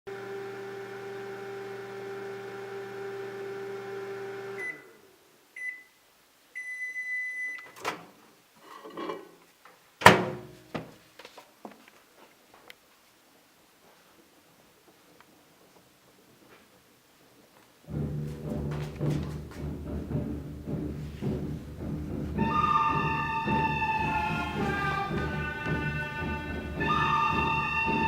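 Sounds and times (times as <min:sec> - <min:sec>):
microwave oven humming: 0:00.1 - 0:04.9
microwave beeps: 0:04.6 - 0:04.9, 0:05.6 - 0:06.0, 0:06.6 - 0:07.8
rustling: 0:08.0 - 0:22.4
loud clunk: 0:10.0 - 0:10.9.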